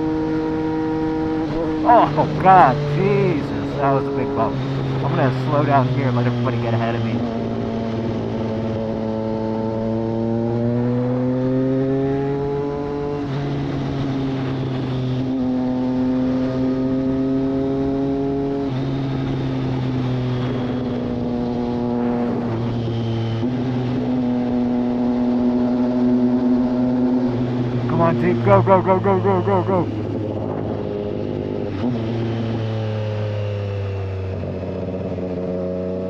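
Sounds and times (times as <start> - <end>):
motorcycle engine accelerating: 7.2 - 27.9.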